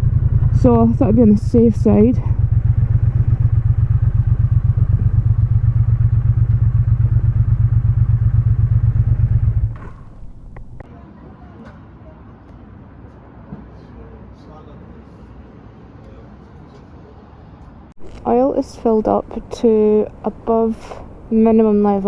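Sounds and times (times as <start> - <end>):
motorcycle engine running: 0.0 - 10.8.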